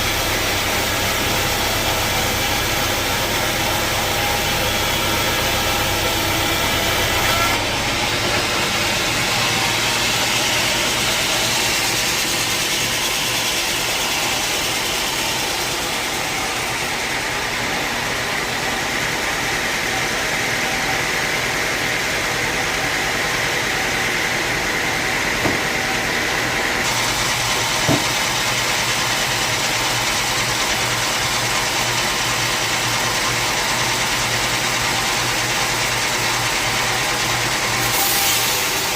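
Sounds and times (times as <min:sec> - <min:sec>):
sawmill saw running: 0:00.0 - 0:38.9
brief knocks: 0:27.8 - 0:28.2.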